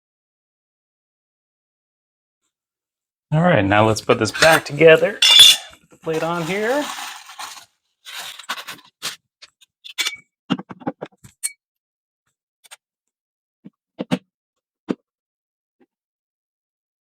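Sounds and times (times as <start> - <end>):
cover plate scraping: 4.2 - 9.2.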